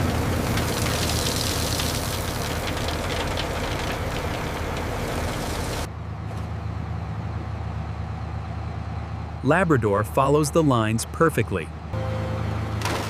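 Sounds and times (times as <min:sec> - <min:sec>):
engine rattle: 0:00.0 - 0:07.6
harvester engine humming: 0:00.0 - 0:13.0.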